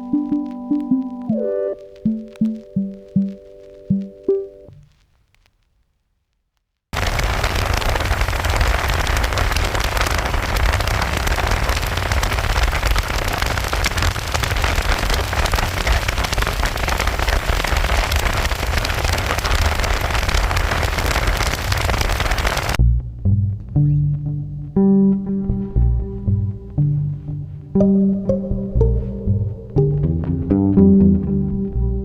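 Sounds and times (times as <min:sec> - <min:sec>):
rain pattering on camera: 0:00.0 - 0:05.6, 0:07.0 - 0:22.8
low wind rumble: 0:07.0 - 0:32.0.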